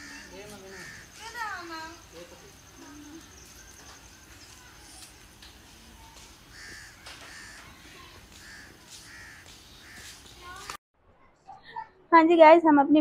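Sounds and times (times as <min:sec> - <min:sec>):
thin steady high tone: 0:00.0 - 0:05.2
faint bird calls: 0:00.0 - 0:10.7.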